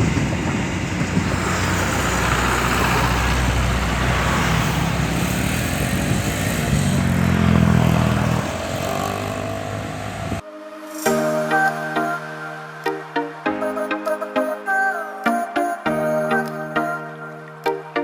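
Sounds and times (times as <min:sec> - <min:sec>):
diesel locomotive engine drone: 0:00.0 - 0:10.4
train wheels rumbling on rails: 0:00.0 - 0:10.4.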